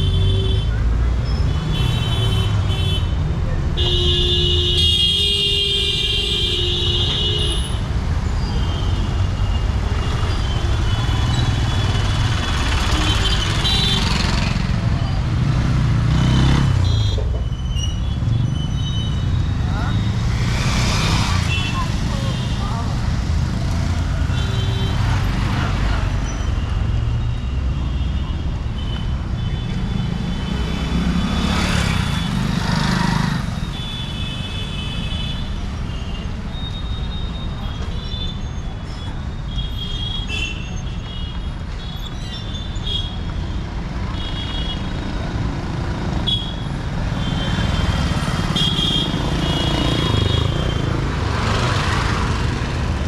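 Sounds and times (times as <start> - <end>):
traffic engine rumble: 7.0 - 53.0
vehicles passing close by: 7.6 - 34.5, 43.2 - 53.0.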